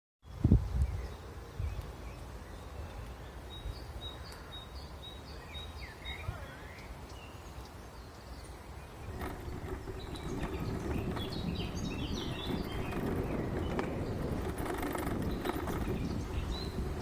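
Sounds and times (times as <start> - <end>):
sweeping bird calls: 0.9 - 17.0
low steady rumble: 8.9 - 17.0.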